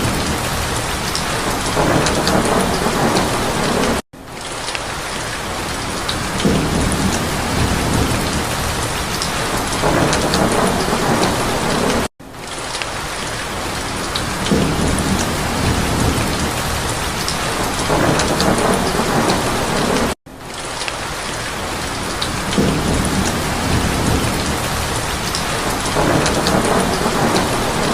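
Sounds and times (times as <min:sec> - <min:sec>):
rolling thunder: 0:00.0 - 0:04.0, 0:06.2 - 0:12.1, 0:14.2 - 0:20.2, 0:22.2 - 0:27.9
heavy rain pattering: 0:00.0 - 0:27.9.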